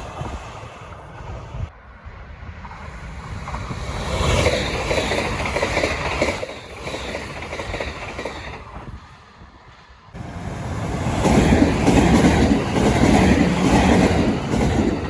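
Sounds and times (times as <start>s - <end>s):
train wheels clattering over rails: 2.6s - 9.0s, 10.2s - 15.0s.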